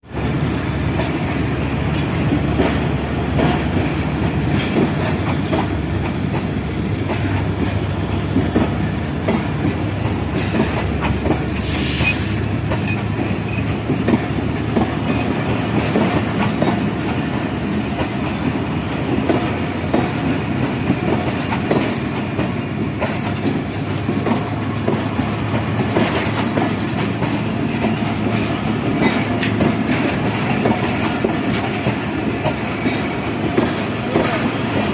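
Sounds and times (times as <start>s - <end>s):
train rumble: 0.1s - 34.9s
train wheels clacking on rails: 0.1s - 34.9s.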